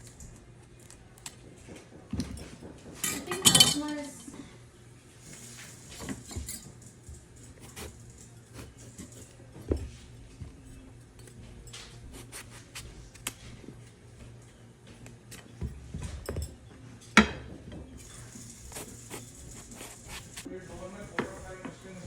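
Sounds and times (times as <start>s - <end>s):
utensils and dishes clattering: 1.3s - 4.4s, 5.2s - 12.4s, 13.8s - 22.0s.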